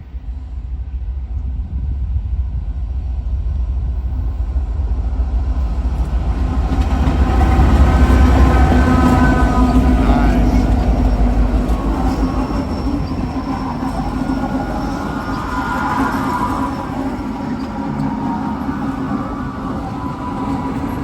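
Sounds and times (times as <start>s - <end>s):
freight train rumble: 0.0s - 21.0s
locomotive engine tones: 4.9s - 21.0s.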